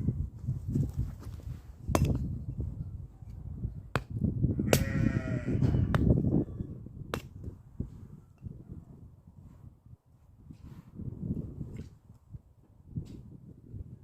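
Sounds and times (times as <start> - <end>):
farm animal bleating: 4.6 - 5.9.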